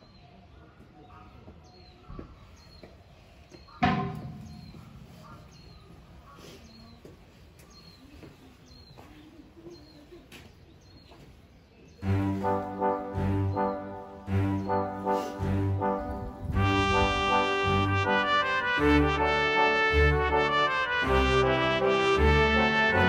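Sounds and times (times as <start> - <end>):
loud ringing clang: 3.8 - 5.1.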